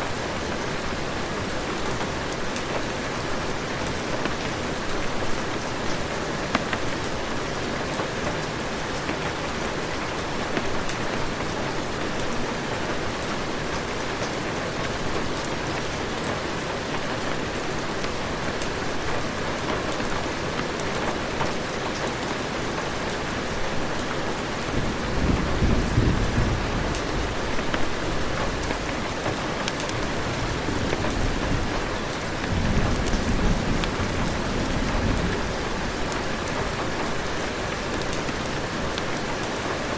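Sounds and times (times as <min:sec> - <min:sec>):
heavy rain falling: 0:00.0 - 0:39.9
thunder rumbling: 0:24.2 - 0:37.5.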